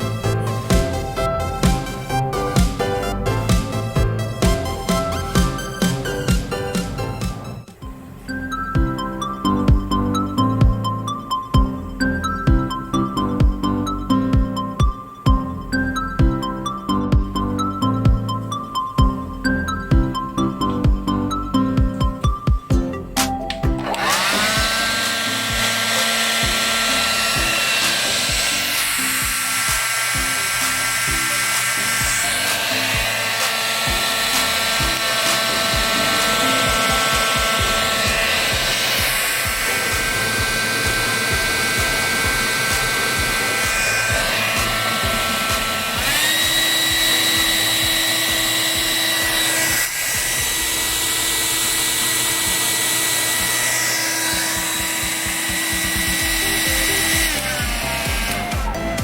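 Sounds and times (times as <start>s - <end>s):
hair dryer running: 0.0s - 7.5s, 23.6s - 59.0s.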